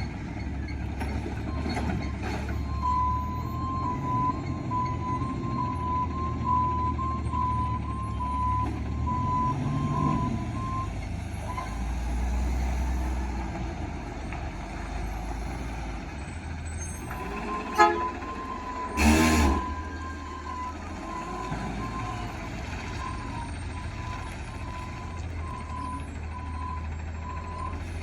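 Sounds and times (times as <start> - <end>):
garbage truck engine running: 0.0 - 28.0
backup alarm beeping: 17.2 - 24.0.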